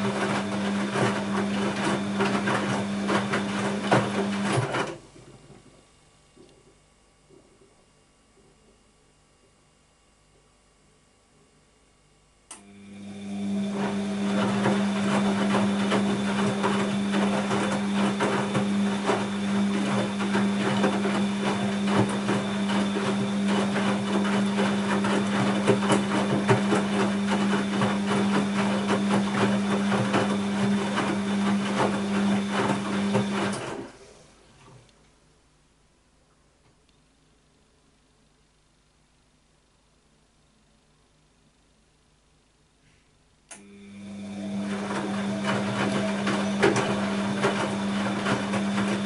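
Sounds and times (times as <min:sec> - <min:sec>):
drain pump humming: 0:00.0 - 0:05.8, 0:12.5 - 0:34.9, 0:43.5 - 0:49.0.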